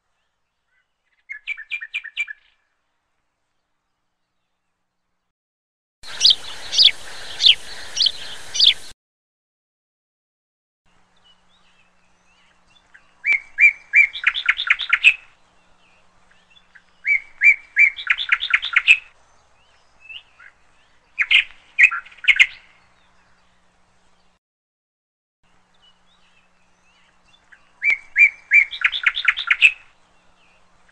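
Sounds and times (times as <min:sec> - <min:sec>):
small bird chirping and singing: 0:00.2 - 0:02.6, 0:06.1 - 0:09.0, 0:11.1 - 0:24.4, 0:25.7 - 0:30.7
faint hiss: 0:06.0 - 0:08.9.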